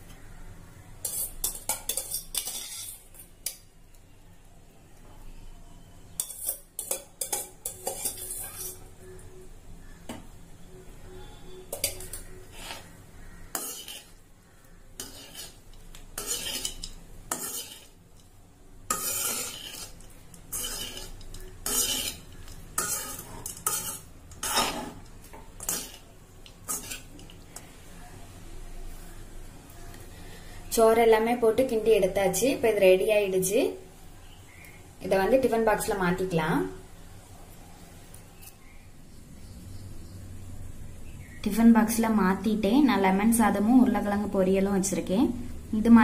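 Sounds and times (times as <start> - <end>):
utensil stirring rice in a pan: 1.0 - 3.6, 6.2 - 8.9, 11.8 - 18.3, 18.9 - 27.7.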